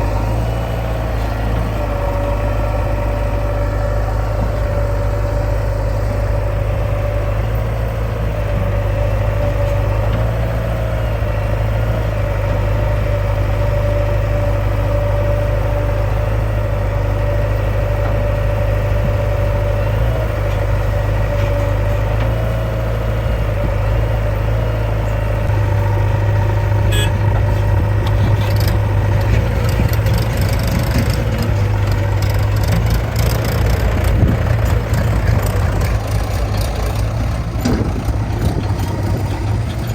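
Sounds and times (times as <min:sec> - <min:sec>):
diesel engine running: 0:00.0 - 0:39.9
knocks and clatter: 0:27.0 - 0:39.9.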